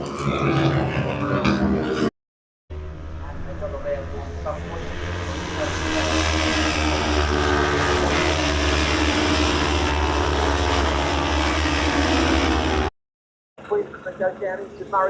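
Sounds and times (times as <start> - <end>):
racing motorcycles at high revs: 0.0 - 2.1, 4.3 - 12.9.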